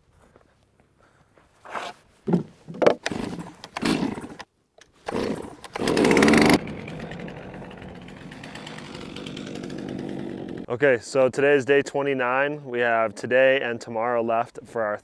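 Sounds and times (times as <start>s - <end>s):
chainsaw starting and revving: 3.0s - 4.4s, 5.0s - 10.7s.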